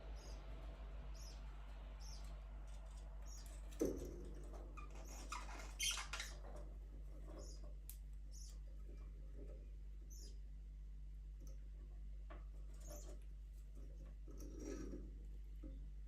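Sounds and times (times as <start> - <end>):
steady low hum: 0.0 - 5.4
budgerigars chirping: 0.2 - 0.4, 1.1 - 1.4.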